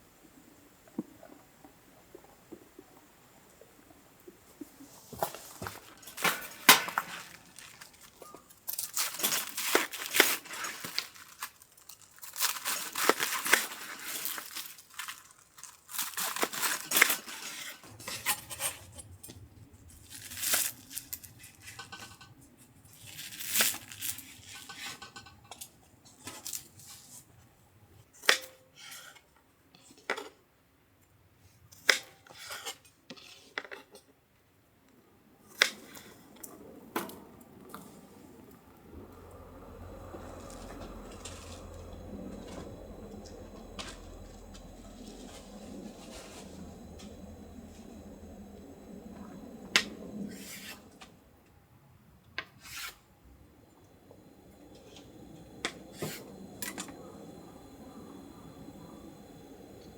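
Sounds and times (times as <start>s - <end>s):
rustling and tearing: 5.3s - 17.9s.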